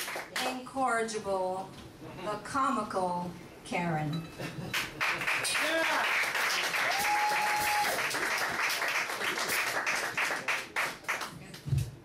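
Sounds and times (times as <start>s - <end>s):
audience applauding: 0.0s - 0.6s, 4.7s - 11.6s.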